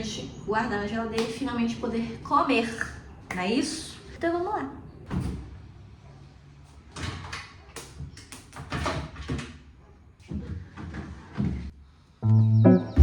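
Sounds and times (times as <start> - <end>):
refrigerator door and shelves clattering: 6.9 - 9.7.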